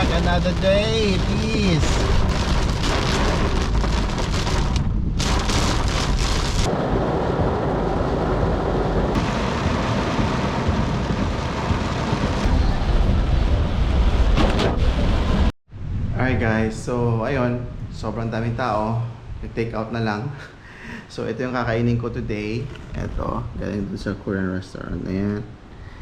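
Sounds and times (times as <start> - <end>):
heavy rain pouring: 0.0 - 15.5
deep low rumble: 0.0 - 19.6.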